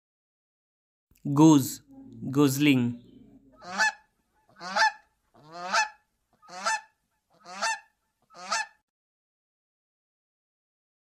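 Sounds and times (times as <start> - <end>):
goose honking: 3.0 - 8.8.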